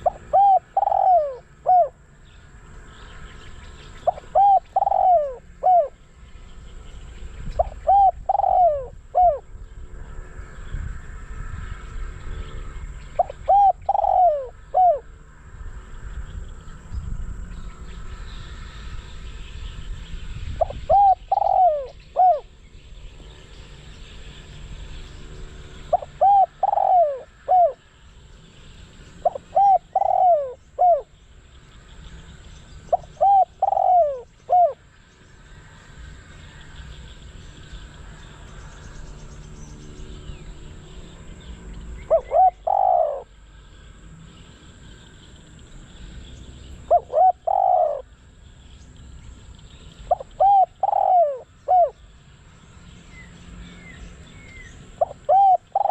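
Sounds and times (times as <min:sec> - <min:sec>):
dove cooing: 0:00.0 - 0:02.1, 0:04.0 - 0:06.1, 0:07.6 - 0:09.5, 0:13.1 - 0:15.1, 0:20.6 - 0:22.5, 0:25.7 - 0:27.8, 0:29.2 - 0:31.1, 0:32.8 - 0:34.8, 0:42.0 - 0:43.3, 0:46.8 - 0:48.1, 0:50.0 - 0:52.0, 0:55.0 - 0:55.9.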